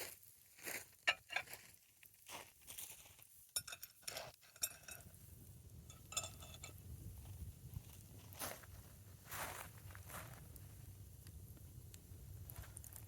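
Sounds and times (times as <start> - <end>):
dishes and utensils clinking: 3.6 - 5.1, 5.9 - 6.8.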